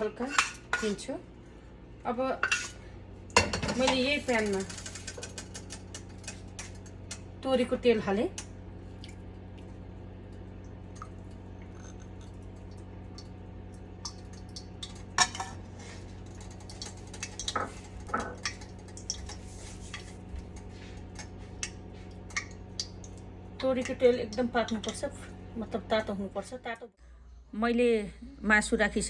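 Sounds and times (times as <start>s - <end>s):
steady low hum: 0.0s - 29.0s
metal utensils clinking on a pan: 2.4s - 2.8s
oil crackling in a pan: 3.3s - 7.4s, 8.4s - 25.2s.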